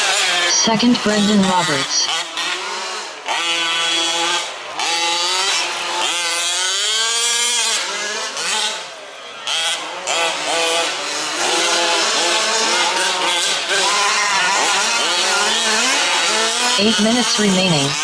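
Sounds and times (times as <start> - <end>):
small two-stroke engines revving: 0.0 - 18.0.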